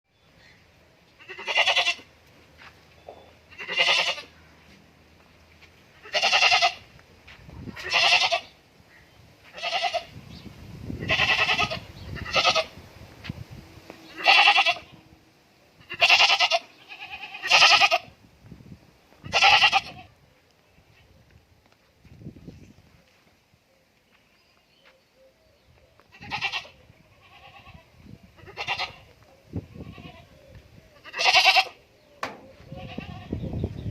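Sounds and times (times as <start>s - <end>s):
goat bleating: 1.2s - 2.1s, 3.5s - 4.4s, 6.0s - 6.9s, 7.7s - 8.6s, 9.4s - 10.2s, 11.0s - 12.7s, 14.1s - 15.0s, 15.8s - 18.1s, 19.2s - 20.1s, 26.1s - 30.4s, 31.0s - 33.5s.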